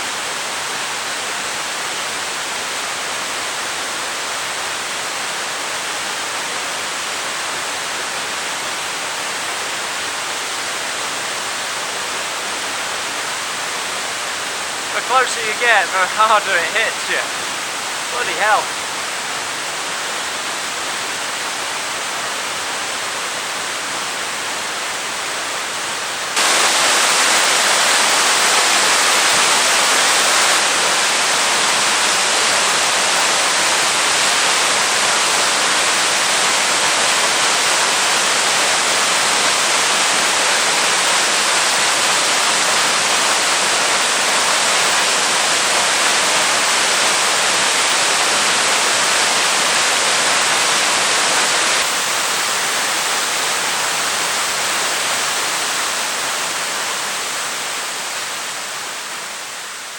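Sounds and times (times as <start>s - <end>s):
waterfall rushing into pool: 0.0s - 59.9s.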